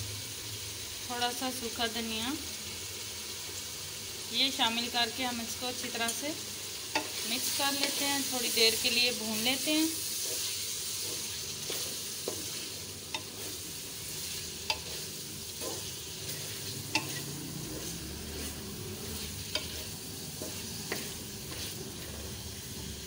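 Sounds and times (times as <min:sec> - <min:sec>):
chicken sizzling in oil: 0:00.0 - 0:23.0.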